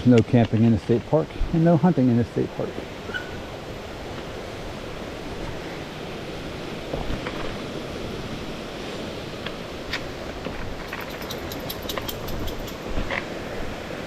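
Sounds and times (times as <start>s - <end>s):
faint clicks: 10.8s - 12.9s.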